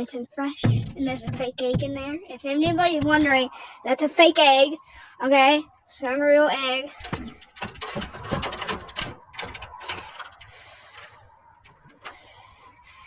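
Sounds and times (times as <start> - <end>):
rustling and scraping: 0.6 - 3.4, 6.9 - 13.0
rapid small clicks: 7.0 - 12.8.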